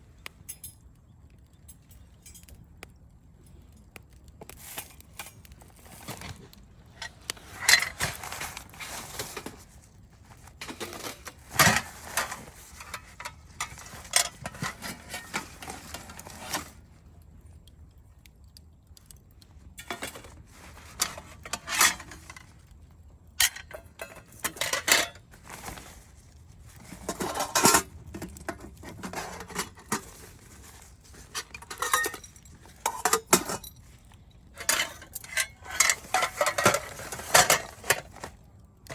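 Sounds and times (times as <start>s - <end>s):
metal cookware clinking: 23.4s - 25.3s, 31.4s - 33.8s, 34.6s - 38.3s.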